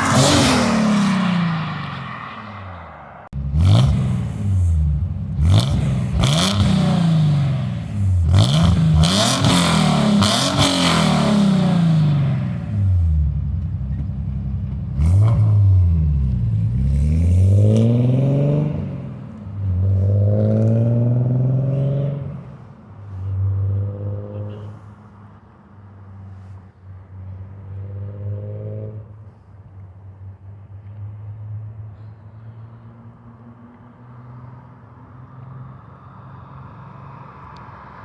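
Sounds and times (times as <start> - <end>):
car engine revving and idling: 3.2 - 24.8.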